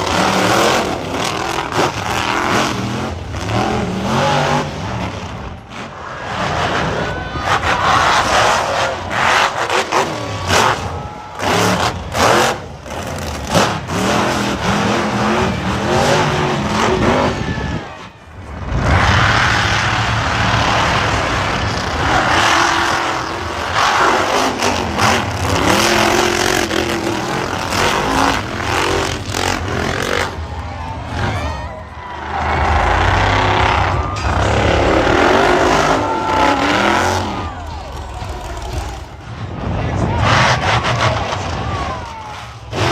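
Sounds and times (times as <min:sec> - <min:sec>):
truck engine revving: 0:00.0 - 0:42.9
loud wash of noise: 0:15.4 - 0:29.6.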